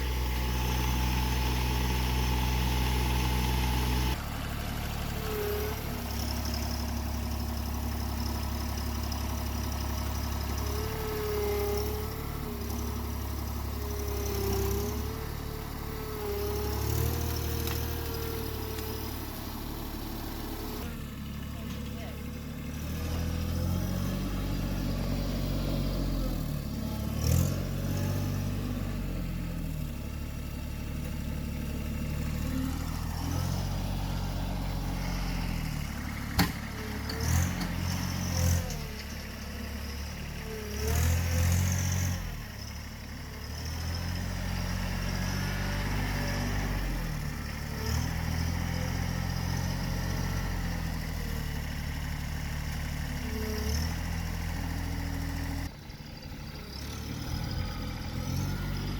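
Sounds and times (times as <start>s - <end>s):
diesel tractor engine running: 0.0s - 58.9s
backhoe metallic clanks: 35.7s - 39.4s.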